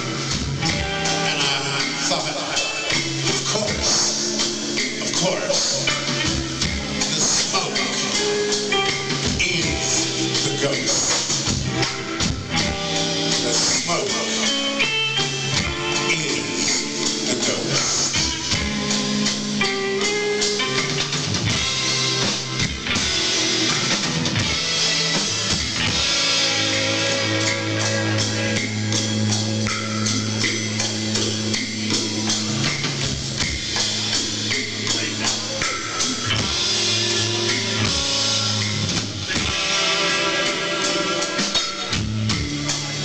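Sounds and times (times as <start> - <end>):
bass guitar: 0.0 - 43.0
drum kit: 0.0 - 43.0
electric guitar: 0.0 - 43.0.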